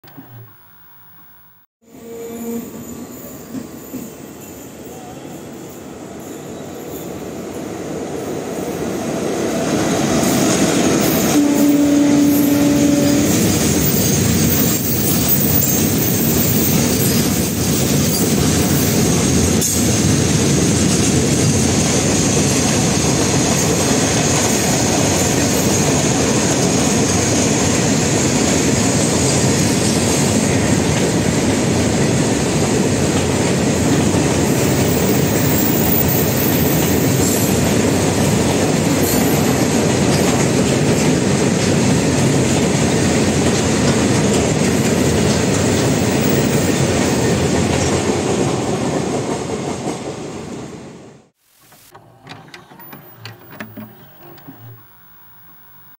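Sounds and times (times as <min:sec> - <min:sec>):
brief steady tone: 0:00.0 - 0:03.1, 0:52.7 - 0:55.9
freight train rumbling past: 0:02.1 - 0:51.3
wheels clattering on rail: 0:10.2 - 0:50.2.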